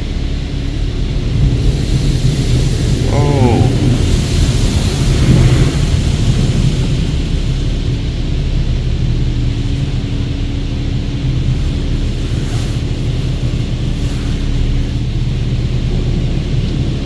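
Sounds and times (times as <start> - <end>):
car wash machinery drone: 0.0 - 3.1, 3.7 - 17.0
water spraying over car: 4.0 - 16.6.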